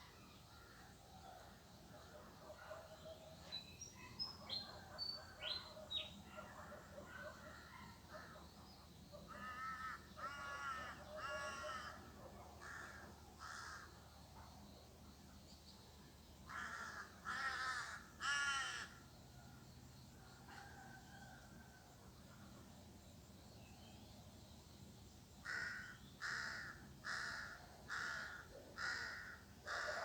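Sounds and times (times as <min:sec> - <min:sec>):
crow cawing: 0:09.3 - 0:12.0, 0:12.6 - 0:13.8, 0:16.5 - 0:18.9, 0:25.4 - 0:30.0.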